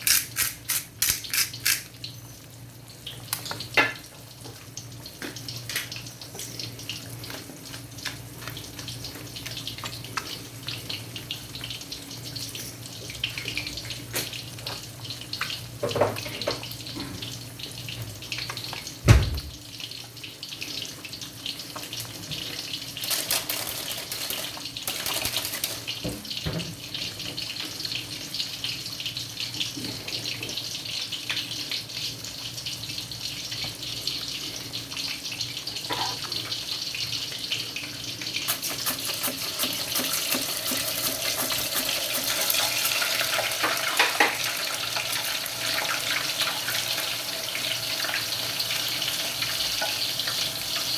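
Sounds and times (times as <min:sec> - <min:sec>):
tap water running into sink: 0:18.3 - 0:20.0, 0:20.8 - 0:28.0, 0:38.2 - 0:50.9.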